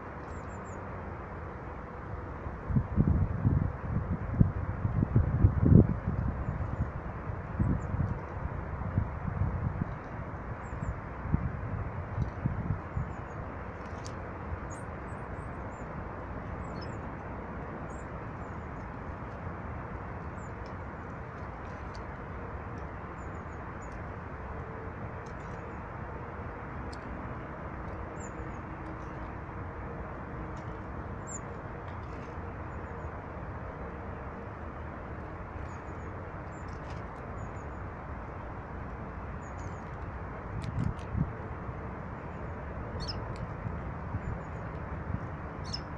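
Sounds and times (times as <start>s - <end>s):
small birds chirping: 45.6s - 45.9s.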